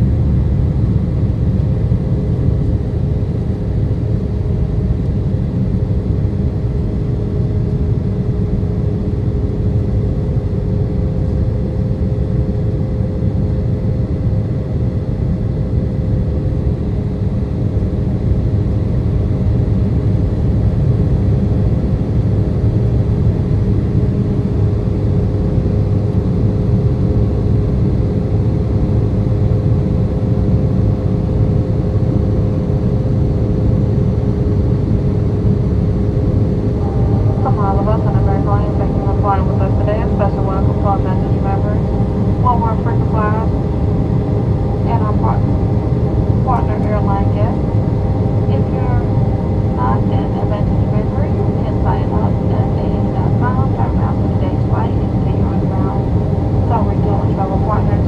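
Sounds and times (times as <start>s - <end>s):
faint steady hum: 31.4s - 58.0s
airliner cabin rumble: 32.1s - 58.0s.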